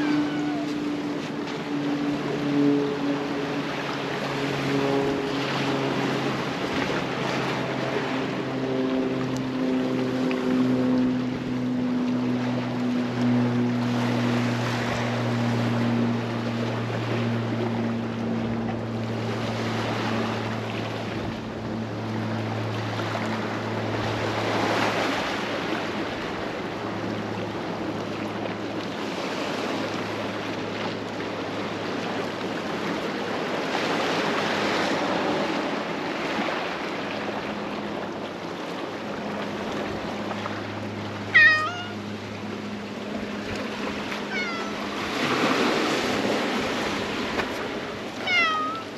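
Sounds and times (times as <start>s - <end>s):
cat meowing: 0.0s - 0.8s, 41.3s - 42.0s, 44.3s - 44.9s, 48.2s - 48.9s
surf washing over concrete: 0.0s - 48.9s.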